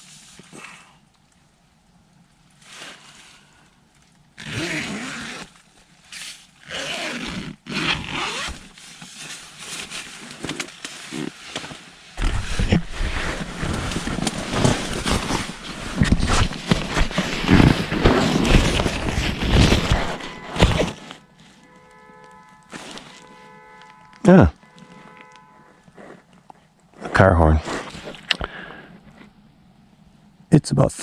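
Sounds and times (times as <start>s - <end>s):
rumbling handling noise: 2.1s - 30.4s
tent fabric and bedding rustling: 2.4s - 29.4s.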